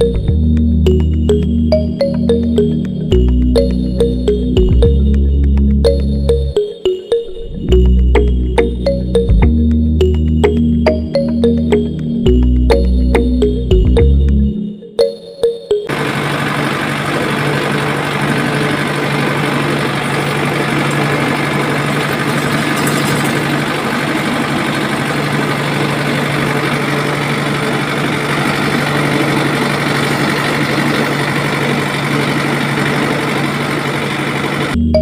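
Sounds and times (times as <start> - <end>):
small motor humming and rattling: 15.9 - 34.8.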